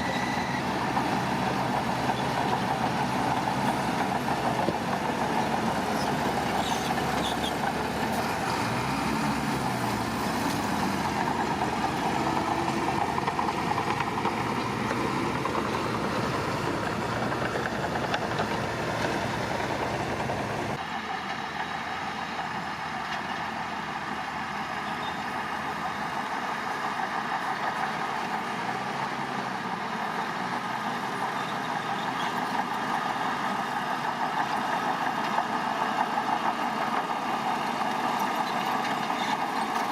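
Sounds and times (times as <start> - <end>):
heavy machinery diesel engines: 0.0 - 39.9.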